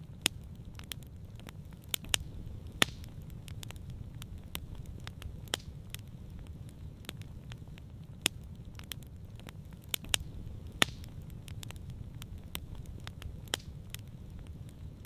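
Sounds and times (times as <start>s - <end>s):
campfire crackling: 0.0s - 15.0s
low rumble: 1.4s - 15.0s.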